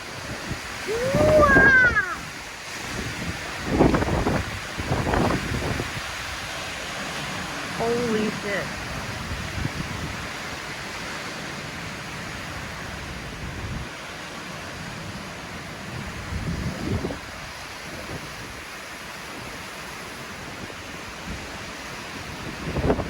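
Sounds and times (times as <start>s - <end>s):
wind gusting: 0.0s - 10.4s
wind buffeting the microphone: 0.0s - 11.3s, 12.2s - 14.0s, 15.8s - 23.0s.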